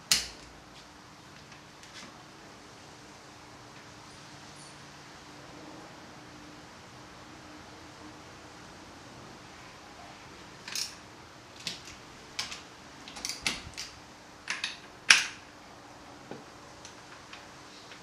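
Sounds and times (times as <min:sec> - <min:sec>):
metal tools clicking and clinking: 0:10.6 - 0:11.0.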